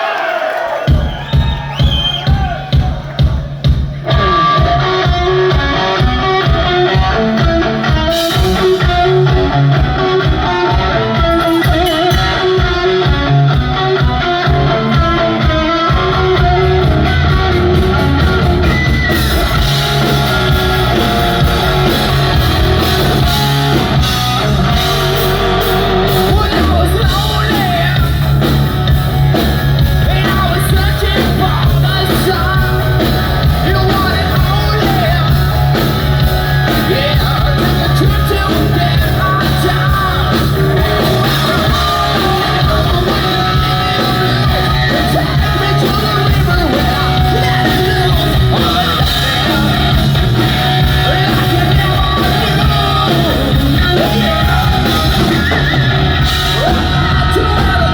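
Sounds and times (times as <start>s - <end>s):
hard rock band playing live: 0.8s - 57.9s
person singing: 4.1s - 28.6s, 29.8s - 57.9s.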